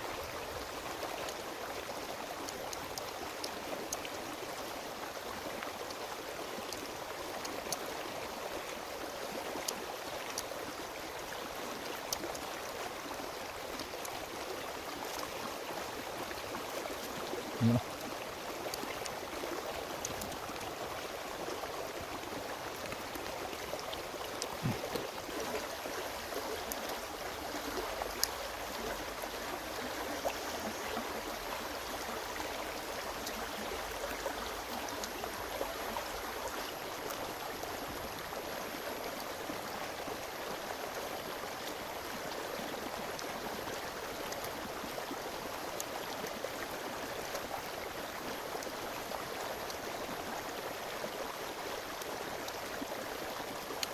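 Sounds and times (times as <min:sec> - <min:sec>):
flowing stream rushing: 0:00.0 - 0:53.9
faint clicks: 0:27.7 - 0:28.4.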